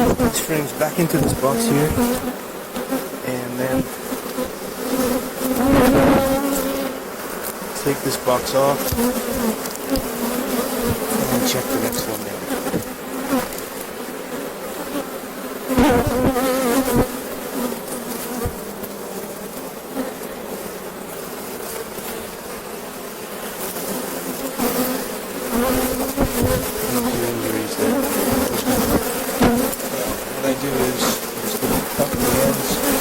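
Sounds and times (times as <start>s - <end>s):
bees buzzing: 0.0s - 33.0s
knocks on wooden hive boxes: 8.8s - 10.2s, 10.8s - 11.3s, 18.4s - 18.7s, 25.5s - 30.2s.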